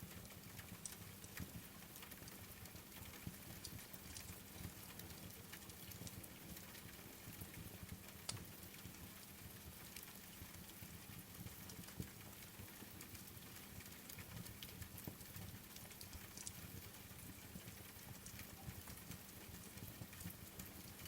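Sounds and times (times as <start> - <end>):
faint rain: 0.0 - 21.0
wood fire crackling and popping: 0.1 - 10.7, 11.6 - 21.0.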